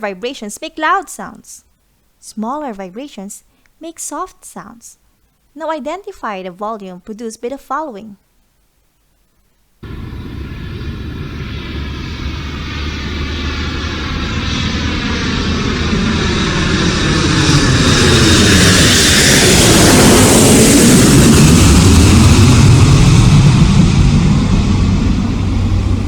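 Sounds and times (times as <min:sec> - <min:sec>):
airplane engine overhead: 0:09.8 - 0:26.0.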